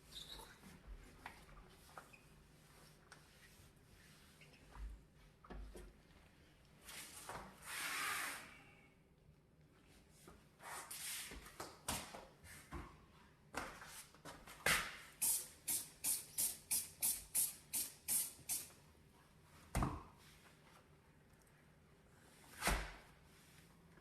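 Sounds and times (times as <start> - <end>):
spray bottle hisses: 15.2 - 18.7.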